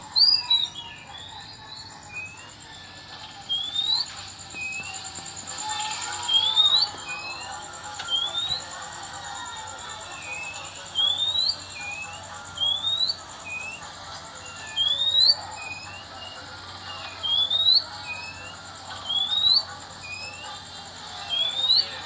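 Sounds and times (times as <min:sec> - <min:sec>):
bird singing whistled notes: 0:00.0 - 0:08.8, 0:10.2 - 0:13.9, 0:14.5 - 0:22.0.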